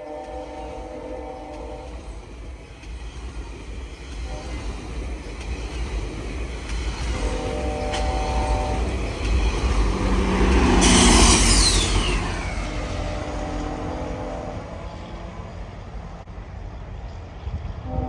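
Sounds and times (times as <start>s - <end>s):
train passing with wheel noise: 0.0s - 18.0s
high tone sliding down: 9.5s - 15.2s.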